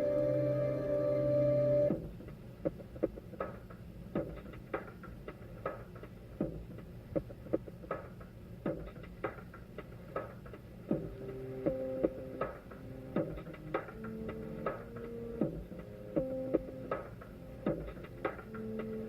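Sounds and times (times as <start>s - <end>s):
sustained ambient music chord: 0.0s - 1.9s
low steady hum: 0.0s - 4.4s, 5.2s - 19.0s.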